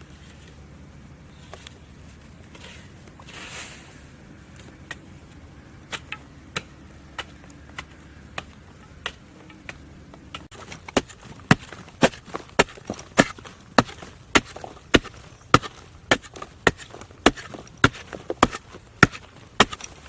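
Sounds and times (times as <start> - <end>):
hand chopping on wood: 5.9 - 20.0.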